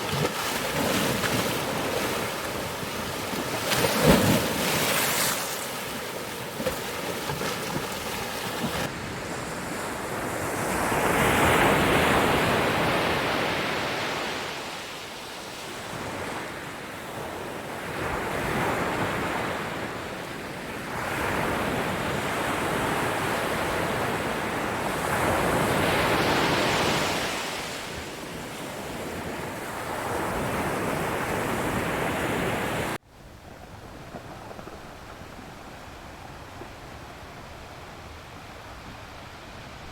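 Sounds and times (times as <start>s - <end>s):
ocean waves breaking: 0.0s - 14.4s.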